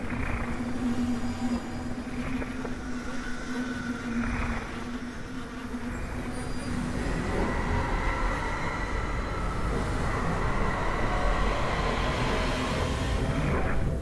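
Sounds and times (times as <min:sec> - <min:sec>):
low drone: 0:00.0 - 0:14.0
dense rumbling noise: 0:06.6 - 0:14.0.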